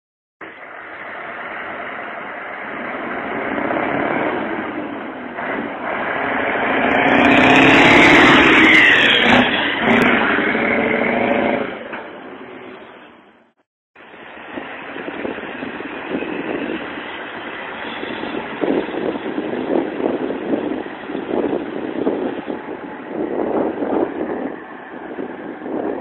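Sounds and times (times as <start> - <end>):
loud truck engine running: 0.4 - 13.1, 14.0 - 26.0.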